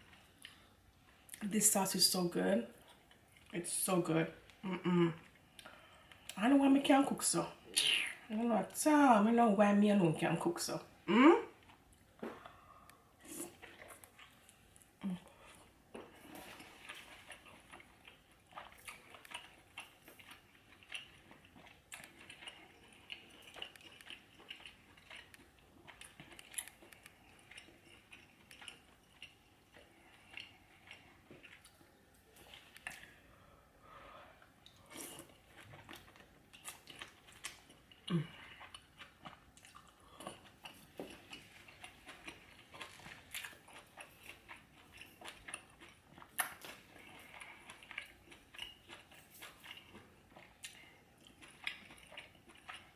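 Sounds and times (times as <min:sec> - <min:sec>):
person chewing and smacking: 0:00.0 - 0:01.4, 0:02.8 - 0:03.5, 0:11.5 - 0:33.2, 0:34.4 - 0:52.9.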